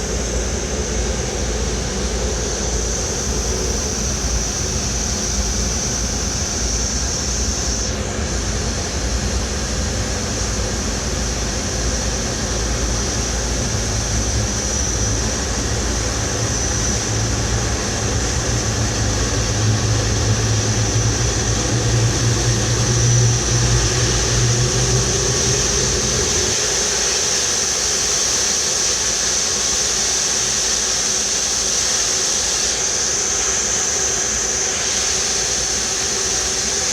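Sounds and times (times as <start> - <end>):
high jet whine: 0.0 - 36.9
tug engine rumble: 15.0 - 27.4.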